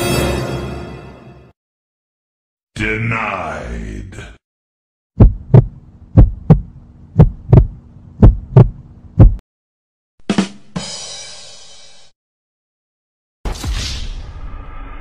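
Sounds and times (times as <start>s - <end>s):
heartbeat thumps: 5.2s - 9.4s
steady low hum: 5.2s - 9.4s.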